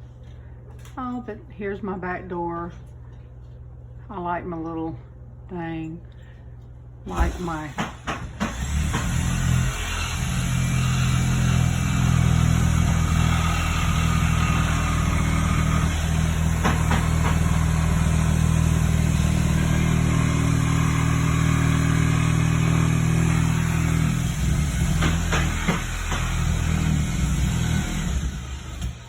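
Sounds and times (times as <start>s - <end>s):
engine running steadily: 10.2s - 29.0s.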